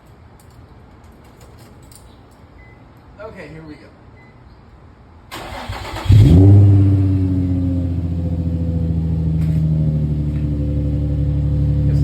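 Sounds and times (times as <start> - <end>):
starter cranking engine: 5.4 - 6.3
car engine idling: 5.4 - 12.0.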